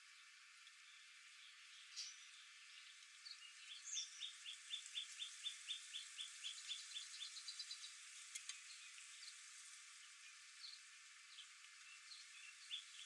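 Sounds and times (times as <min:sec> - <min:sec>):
songbird singing: 0:00.1 - 0:13.0
faint click: 0:08.3 - 0:08.6.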